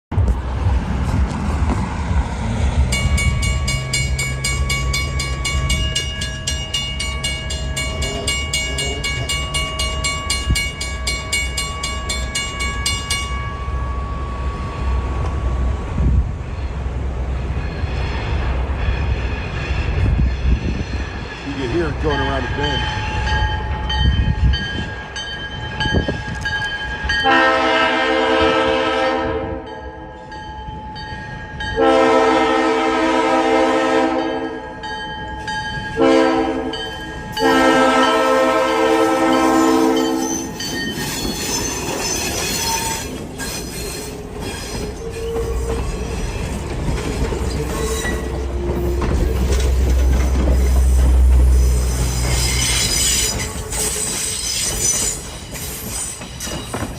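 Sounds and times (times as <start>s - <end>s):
low train rumble: 0.1s - 56.9s
train wheels on rails: 0.1s - 56.9s
train horn blasts: 27.2s - 29.8s, 31.8s - 34.6s, 36.0s - 40.6s.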